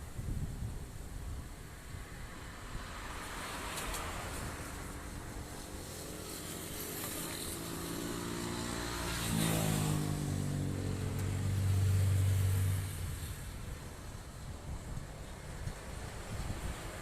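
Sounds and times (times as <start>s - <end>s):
wind hiss: 0.0s - 17.0s
vehicle driving past: 6.3s - 13.5s.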